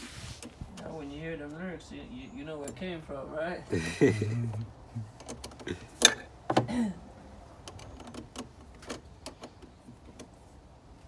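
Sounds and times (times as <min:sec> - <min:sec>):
sharp clicks and knocks: 0:04.5 - 0:06.7.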